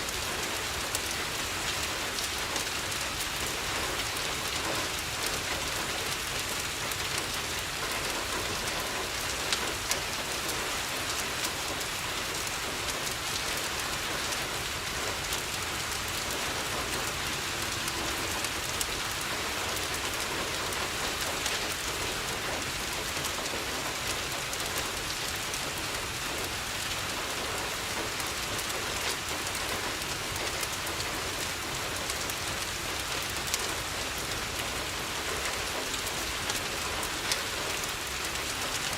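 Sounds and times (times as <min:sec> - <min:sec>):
rain on a window: 0:00.0 - 0:38.9
wood fire crackling and popping: 0:22.6 - 0:38.9.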